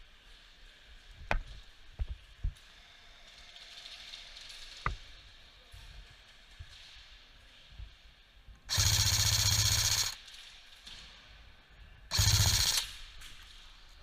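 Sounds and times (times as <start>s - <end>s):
airsoft gun full-auto bursts: 8.7s - 10.2s, 12.1s - 13.0s.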